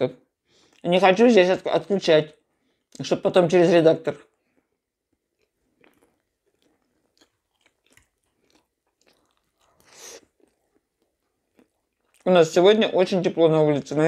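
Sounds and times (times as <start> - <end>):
mouth chewing: 4.3 - 12.6
wet mouth clicks: 5.1 - 12.3
breathy mouth sound: 7.6 - 12.2.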